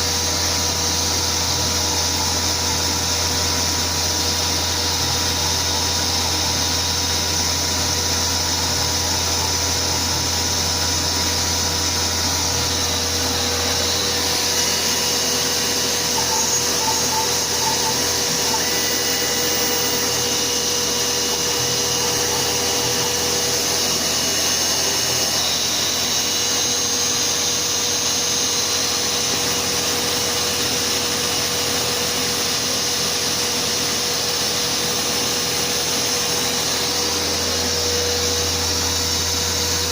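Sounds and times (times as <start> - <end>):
dust extraction vacuum rushing: 0.0 - 39.9
router spindle cutting: 0.0 - 39.9
low hum: 36.3 - 39.9.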